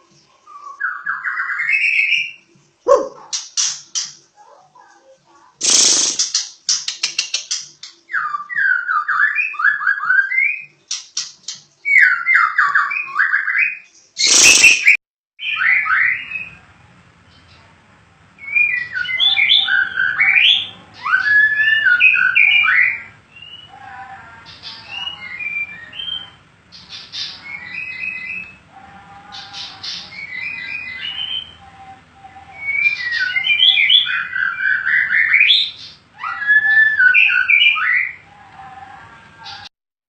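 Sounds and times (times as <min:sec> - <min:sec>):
bird singing whistled phrases: 0:05.6 - 0:06.2, 0:08.1 - 0:10.7, 0:11.9 - 0:16.6, 0:18.4 - 0:23.7, 0:24.8 - 0:26.4, 0:27.1 - 0:28.6, 0:32.5 - 0:38.2
harsh rasping bird call: 0:05.6 - 0:06.4, 0:14.2 - 0:16.3.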